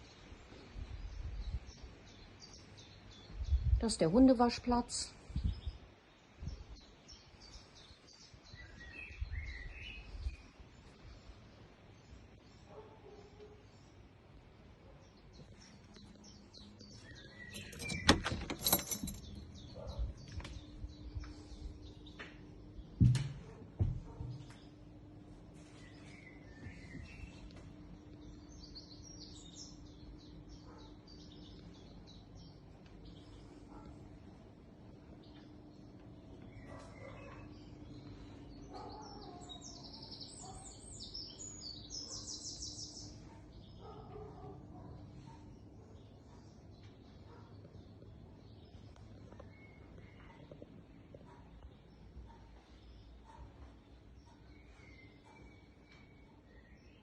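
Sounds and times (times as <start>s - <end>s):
small birds chirping: 0.0s - 57.0s
sharp knocks and clicks: 23.0s - 24.6s.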